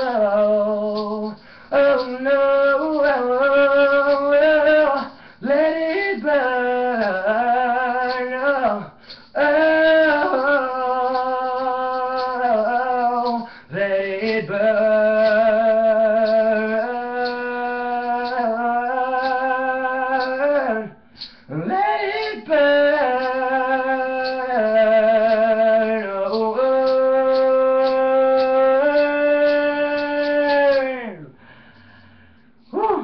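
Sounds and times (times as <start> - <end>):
man singing unaccompanied: 0.0 - 31.5, 32.6 - 33.0
singer breathing: 1.4 - 1.8, 5.0 - 5.5, 8.8 - 9.4, 13.4 - 13.8, 21.0 - 21.6, 31.3 - 32.8.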